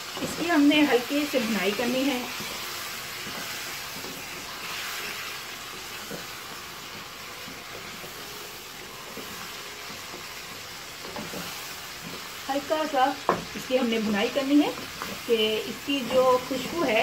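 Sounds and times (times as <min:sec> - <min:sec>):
chicken sizzling in hot oil: 0:00.0 - 0:17.0
wooden spoon stirring in wok: 0:00.0 - 0:17.0.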